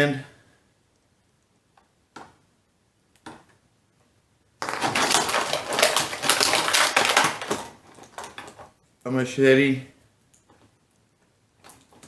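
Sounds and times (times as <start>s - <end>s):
plastic packaging crinkling: 4.6s - 8.8s.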